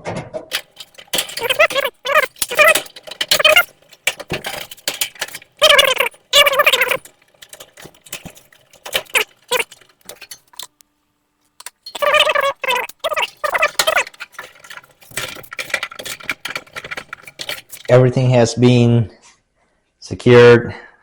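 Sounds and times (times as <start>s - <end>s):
small metallic clinks: 0.5s - 10.8s, 11.6s - 18.0s.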